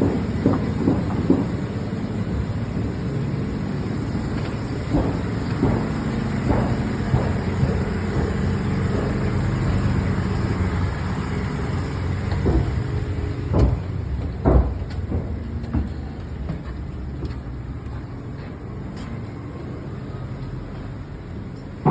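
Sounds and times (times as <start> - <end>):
framing work knocks: 0.0 - 2.3, 4.1 - 17.4
engine running: 0.0 - 21.9.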